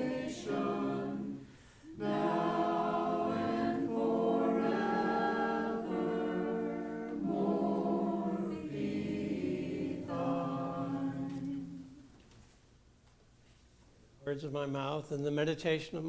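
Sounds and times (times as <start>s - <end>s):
group singing a hymn: 0.0s - 12.2s.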